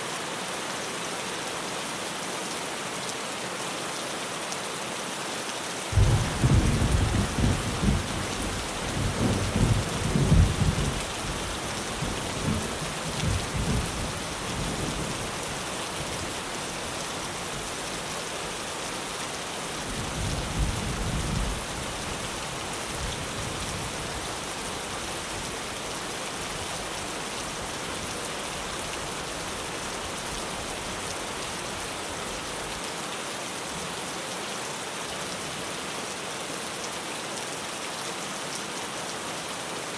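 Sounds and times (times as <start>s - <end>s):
heavy rain on a tin roof: 0.0s - 39.9s
rolling thunder: 6.0s - 11.4s.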